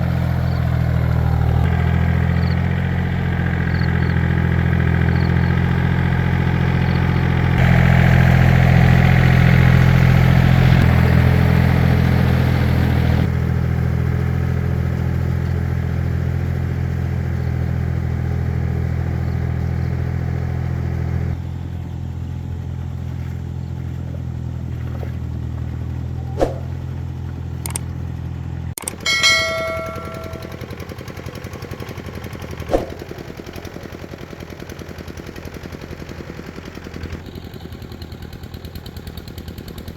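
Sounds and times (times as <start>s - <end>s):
walking tractor engine running: 0.0s - 39.9s
sharp clicks: 27.6s - 27.9s, 28.8s - 30.5s
ringing metallic clank: 28.8s - 30.8s.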